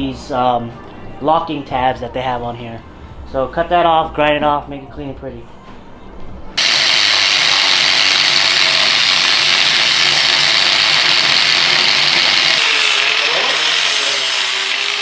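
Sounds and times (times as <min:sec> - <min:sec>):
angle grinder grinding metal: 0:06.6 - 0:15.0.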